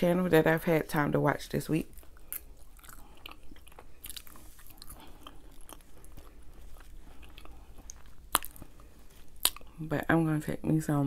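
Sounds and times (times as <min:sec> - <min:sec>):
person chewing food: 0:01.9 - 0:09.8.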